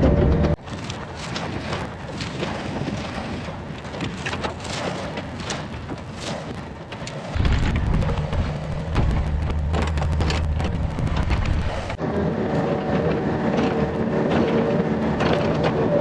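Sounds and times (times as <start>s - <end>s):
sharp cracks and clanks: 3.8s - 12.0s
excavator diesel engine running: 7.3s - 16.0s.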